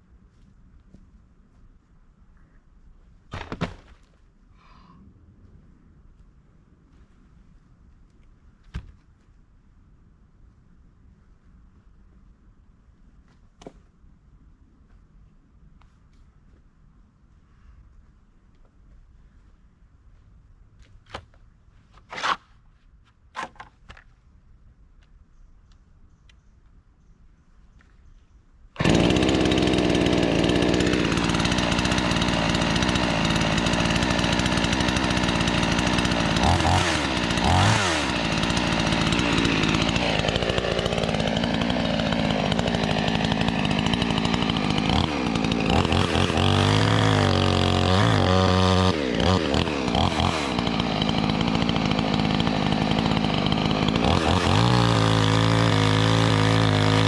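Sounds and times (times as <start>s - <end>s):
chainsaw running: 28.8s - 57.0s.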